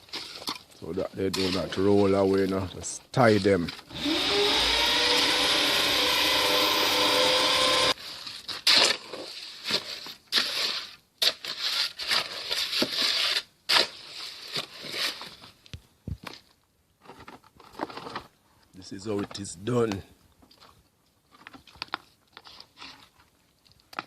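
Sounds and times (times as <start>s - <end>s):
trowel scraping wet concrete: 1.2s - 2.5s, 7.9s - 15.3s.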